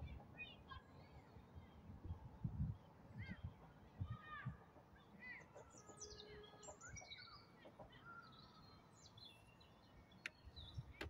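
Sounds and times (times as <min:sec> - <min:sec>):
small birds chirping and singing: 0:05.0 - 0:11.0.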